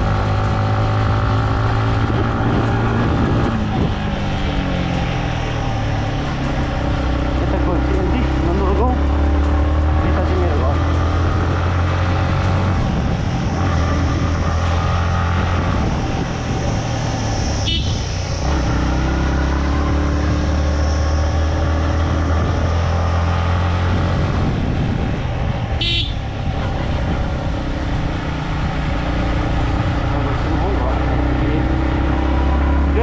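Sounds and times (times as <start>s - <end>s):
motorcycle engine running: 22.0s - 32.0s.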